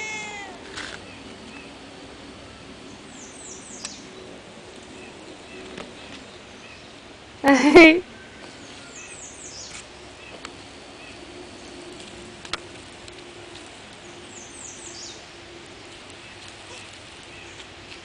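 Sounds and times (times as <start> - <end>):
small bird calling: 0.0 - 1.7.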